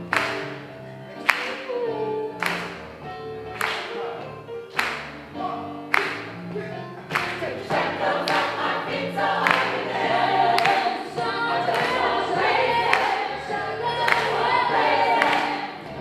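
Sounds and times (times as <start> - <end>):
choir singing sustained chords: 6.7 - 16.0.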